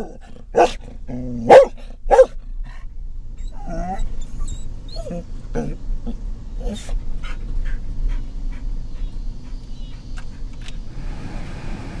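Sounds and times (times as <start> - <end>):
van road noise rumble: 0.0 - 12.0.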